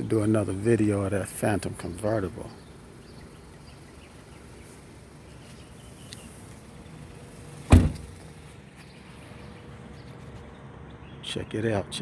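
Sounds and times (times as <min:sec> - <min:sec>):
loud short thump: 0:07.7 - 0:08.2.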